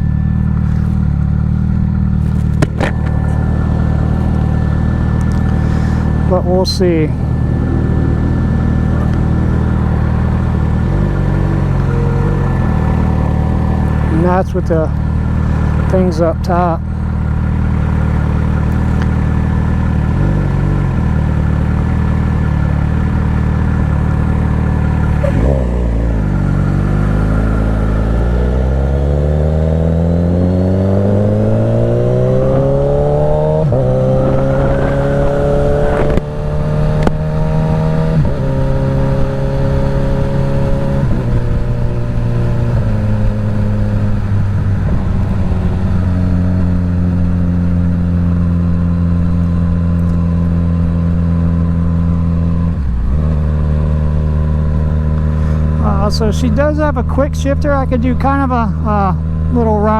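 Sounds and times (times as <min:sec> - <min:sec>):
motorcycle engine revving: 0:00.0 - 0:59.9
motorcycle gear change: 0:02.2 - 0:03.5, 0:32.3 - 0:44.2.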